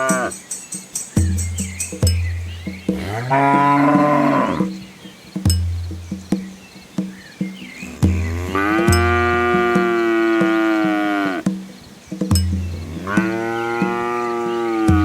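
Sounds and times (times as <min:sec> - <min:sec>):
cow mooing: 0:03.0 - 0:04.7, 0:07.8 - 0:11.4, 0:12.8 - 0:15.0.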